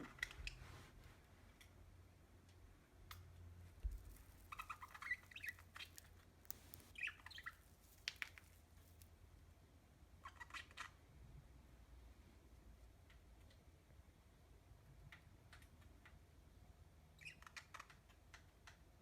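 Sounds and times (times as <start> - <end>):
budgerigar chirping: 4.5 - 6.2, 6.9 - 7.6, 10.2 - 11.0, 17.2 - 18.0.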